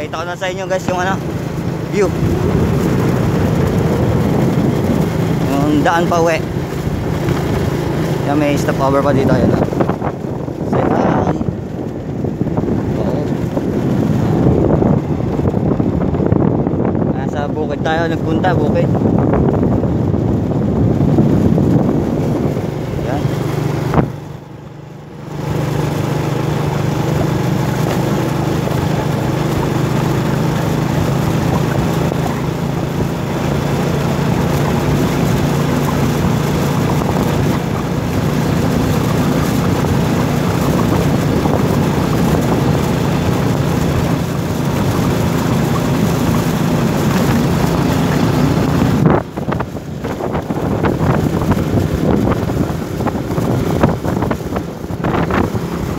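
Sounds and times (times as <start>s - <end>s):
vehicle engine humming: 0.0s - 55.9s
wind noise on microphone: 0.0s - 55.9s.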